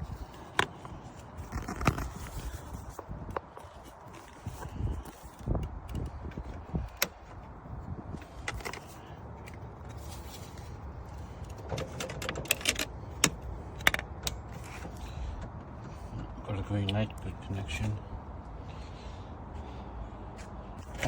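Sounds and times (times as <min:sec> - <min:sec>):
steady low rumble: 0:00.0 - 0:11.7.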